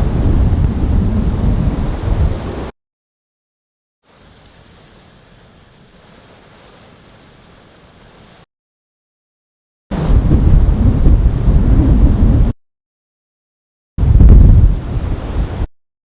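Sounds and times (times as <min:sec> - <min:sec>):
wind gusting against microphone: 0:00.0 - 0:02.7, 0:09.9 - 0:12.6, 0:14.0 - 0:15.7.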